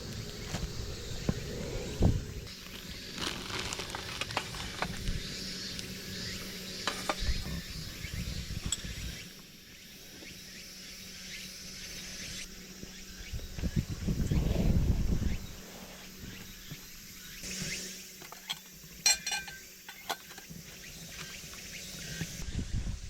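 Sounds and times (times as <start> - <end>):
rustling: 0.1 - 5.1
camp gear knocking and clicking: 18.2 - 20.6.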